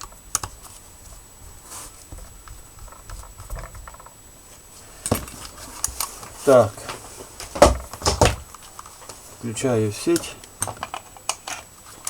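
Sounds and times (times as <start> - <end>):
plastic parts clicking and rattling: 10.1 - 11.7.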